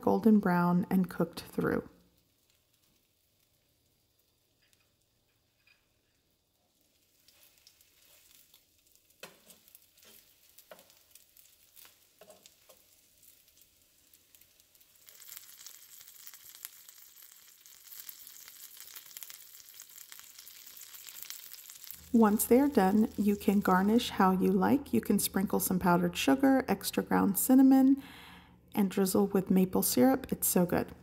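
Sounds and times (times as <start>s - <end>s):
butter sizzling in a skillet: 1.9s - 24.1s
metal tongs clicking on pan: 9.2s - 11.0s, 11.8s - 12.9s.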